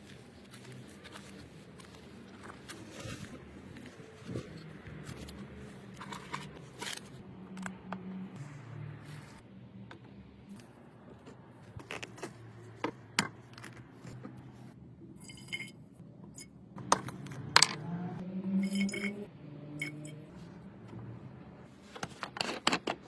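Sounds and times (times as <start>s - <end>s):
metal parts clinking: 18.6s - 19.2s.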